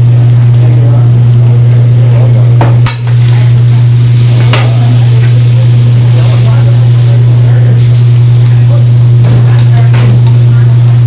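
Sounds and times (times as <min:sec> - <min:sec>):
food sizzling on a griddle: 0:00.0 - 0:11.0
loud steady low hum: 0:00.0 - 0:11.0.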